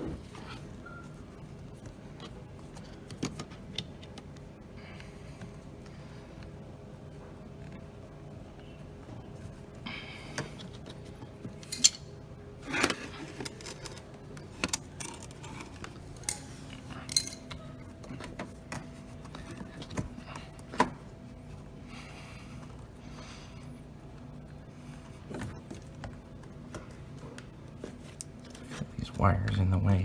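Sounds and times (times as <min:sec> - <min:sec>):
clicks and metallic clinks of tools: 0:16.2 - 0:17.6.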